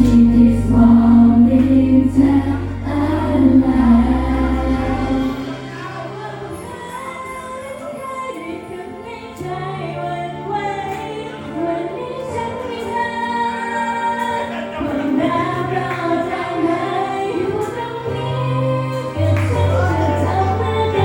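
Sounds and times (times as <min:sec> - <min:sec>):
backing track with bass: 0:00.0 - 0:06.6
woman singing pop song: 0:00.0 - 0:21.0.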